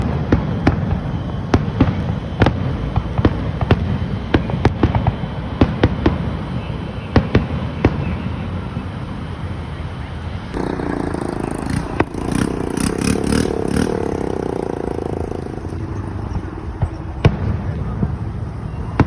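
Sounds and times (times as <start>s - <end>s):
fireworks bangs and pops: 0.0s - 8.8s, 10.5s - 19.0s
steady low rumble: 10.5s - 18.6s.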